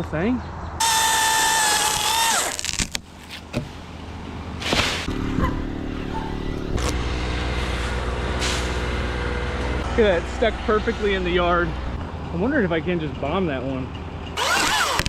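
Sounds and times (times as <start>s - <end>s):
chainsaw revving: 0.8s - 2.8s, 5.1s - 10.0s, 14.4s - 15.0s
engine idling: 5.1s - 15.0s.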